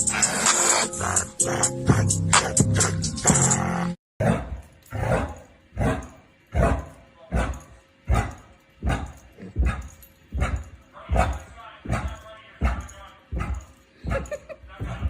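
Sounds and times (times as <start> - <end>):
dog barking: 4.2 - 15.0.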